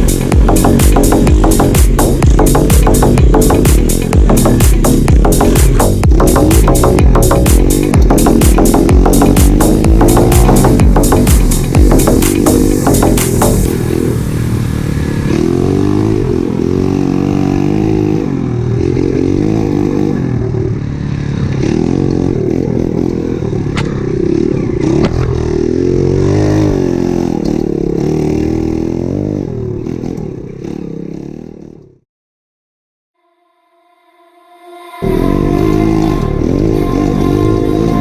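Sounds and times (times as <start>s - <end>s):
motorbike engine revving: 0.0s - 32.0s, 35.0s - 38.0s.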